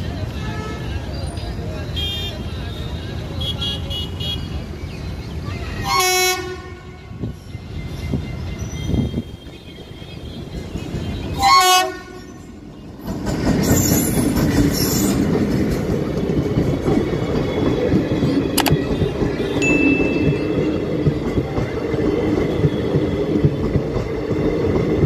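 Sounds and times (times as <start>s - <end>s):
train coaches passing rumble: 0.0s - 25.0s
diesel locomotive horn blasts: 5.8s - 7.3s, 11.2s - 12.4s.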